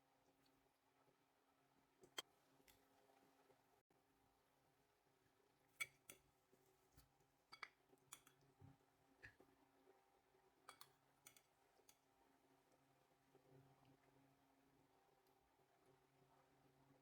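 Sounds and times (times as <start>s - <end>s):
faint sharp clicks and taps: 5.8s - 10.0s, 10.7s - 12.1s.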